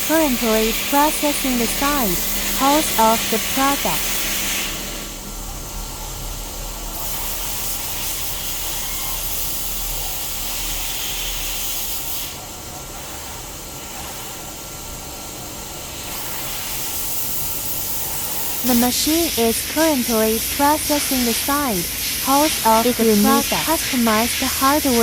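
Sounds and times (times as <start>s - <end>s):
cnc machine cutting metal: 0.0s - 5.4s.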